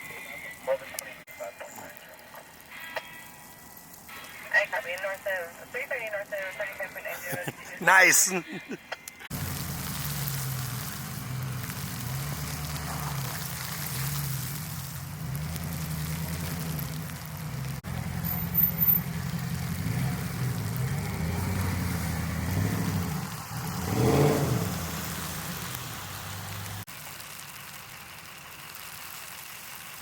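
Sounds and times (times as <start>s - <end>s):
vehicle engine idling: 14.1s - 30.0s.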